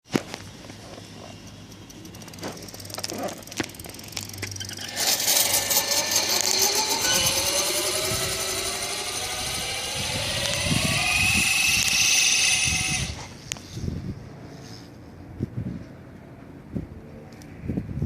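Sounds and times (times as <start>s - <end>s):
electric motor whining: 1.8s - 13.4s.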